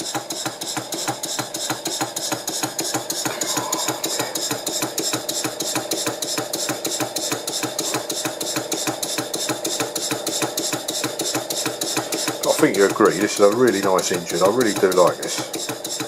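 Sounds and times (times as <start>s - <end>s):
model steam engine exhaust beat: 0.0s - 16.0s
engine clunk: 11.1s - 16.0s.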